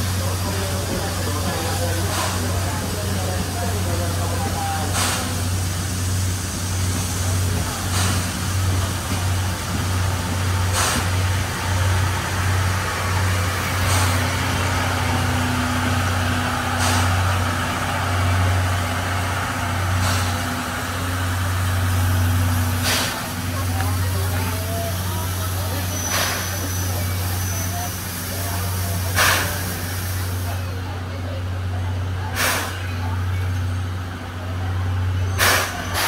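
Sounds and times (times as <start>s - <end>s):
passenger train engine hum: 0.0s - 36.0s
short hiss: 32.4s - 32.8s, 35.4s - 36.0s.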